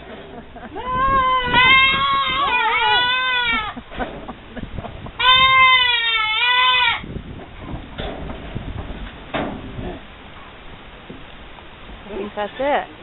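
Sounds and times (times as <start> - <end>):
goat kid bleating: 0.8 - 3.8, 5.2 - 7.0.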